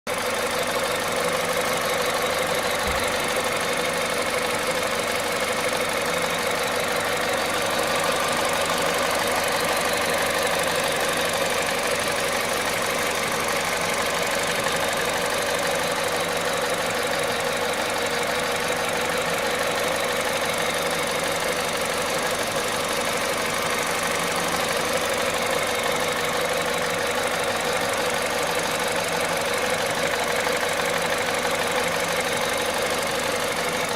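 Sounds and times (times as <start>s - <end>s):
car engine idling: 0.1s - 33.9s.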